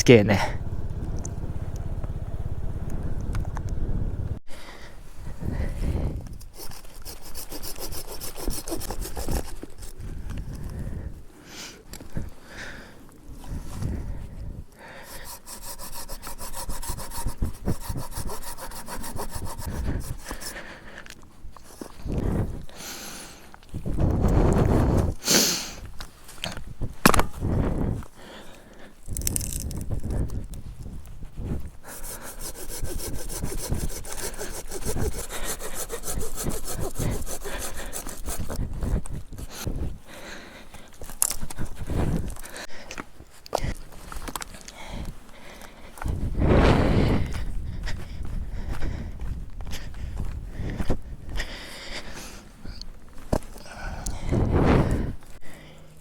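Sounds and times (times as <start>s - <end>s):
hand saw cutting wood: 6.4s - 10.0s, 14.9s - 20.9s, 31.8s - 38.7s.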